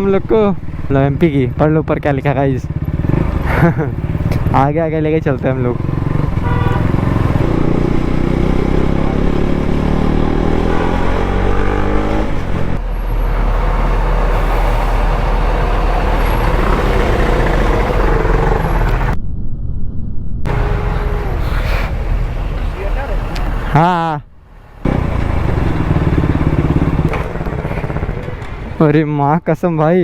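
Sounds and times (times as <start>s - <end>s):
wind and road noise: 0.0s - 30.0s
motorcycle engine accelerating: 2.4s - 12.8s, 13.7s - 19.2s, 24.8s - 28.9s.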